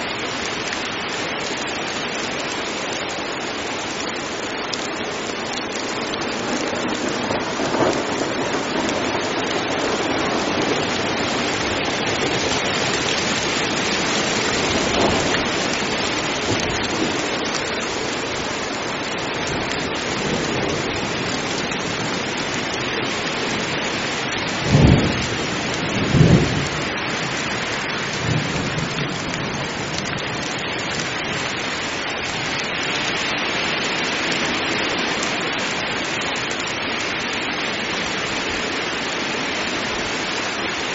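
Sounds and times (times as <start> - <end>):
heavy rain falling: 0.0 - 40.9
thunder claps: 6.3 - 17.4, 24.6 - 27.3.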